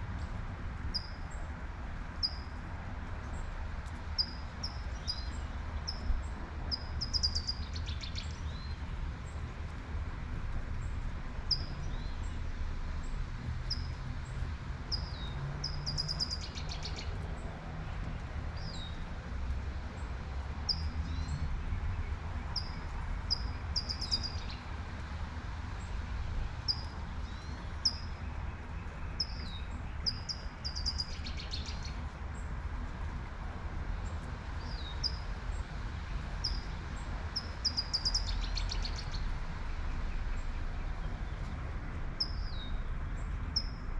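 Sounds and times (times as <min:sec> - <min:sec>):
songbird chirping with buzzy trill: 0:22.5 - 0:24.6, 0:29.1 - 0:32.0, 0:37.4 - 0:39.2.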